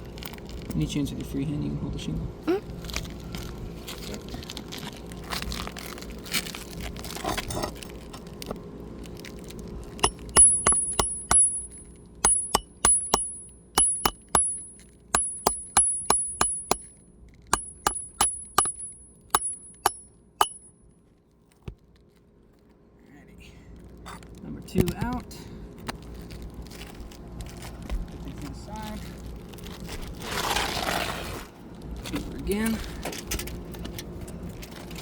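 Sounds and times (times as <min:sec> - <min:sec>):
metal pry bar being struck: 0:10.0 - 0:16.9, 0:17.5 - 0:20.7
shingles scraping and rustling: 0:29.0 - 0:32.2.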